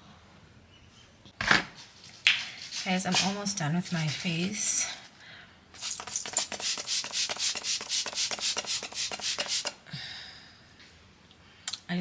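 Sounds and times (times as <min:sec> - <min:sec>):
applicator rubbing on face: 0:05.8 - 0:09.8.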